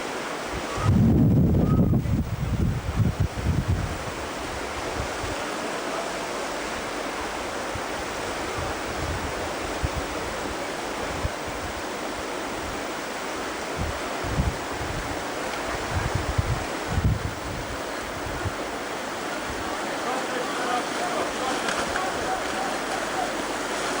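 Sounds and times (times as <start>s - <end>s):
river water rushing: 0.0s - 1.1s, 2.1s - 24.0s
wind buffeting microphone: 0.5s - 5.5s, 6.9s - 11.9s, 12.6s - 19.9s.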